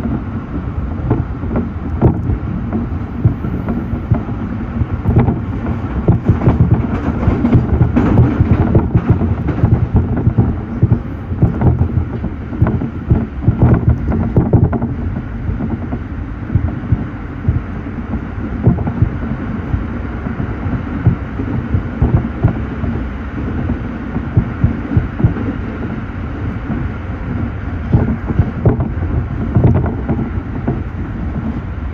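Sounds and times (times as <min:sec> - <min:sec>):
train rumbling: 0:00.0 - 0:31.9
knocks and rattles: 0:05.0 - 0:14.9.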